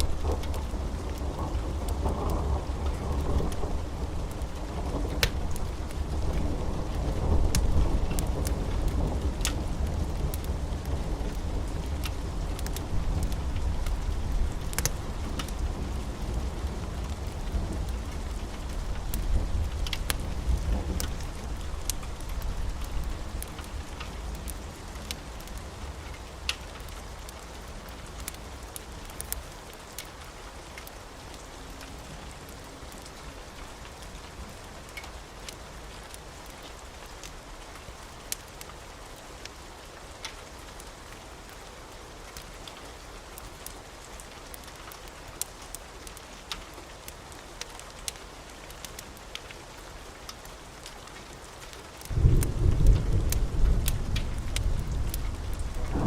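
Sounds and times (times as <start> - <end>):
rain hiss: 0.0 - 56.0
wood fire crackling: 0.0 - 56.0
thunder rumbling: 52.1 - 56.0.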